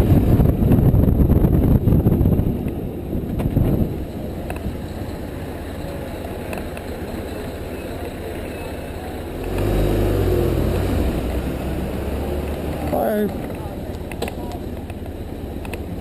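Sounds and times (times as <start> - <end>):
wind noise on microphone: 0.0 - 5.4.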